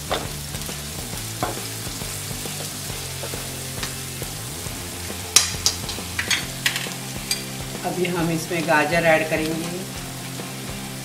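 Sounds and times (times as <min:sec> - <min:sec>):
onions sizzling in hot oil: 0:00.0 - 0:11.0
metal spoon clinking on pan: 0:05.4 - 0:07.6.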